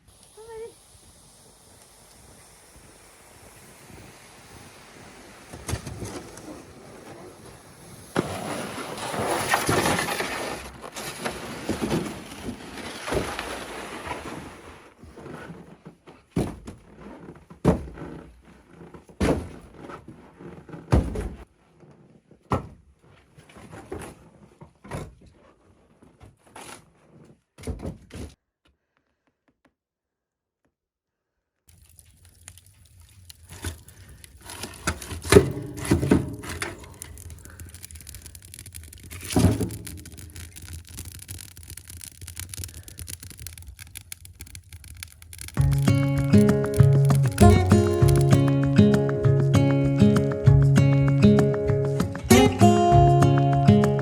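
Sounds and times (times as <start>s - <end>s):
rustling and handling noise: 31.7s - 49.5s.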